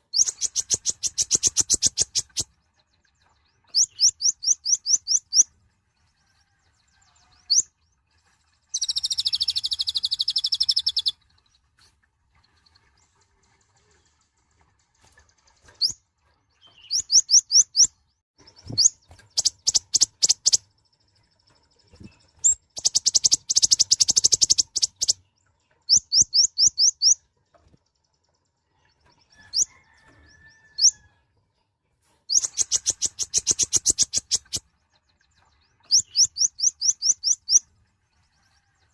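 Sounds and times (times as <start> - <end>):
sunbird singing: 0.0 - 5.5, 8.8 - 11.2, 16.6 - 27.2, 32.3 - 37.7.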